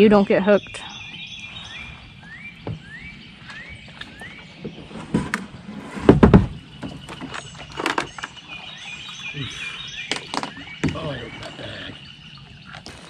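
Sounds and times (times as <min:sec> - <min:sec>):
faint chorus of birds: 0:00.2 - 0:13.0
bird whistling rising notes: 0:00.6 - 0:04.8
kayak paddle knocking: 0:10.1 - 0:11.6.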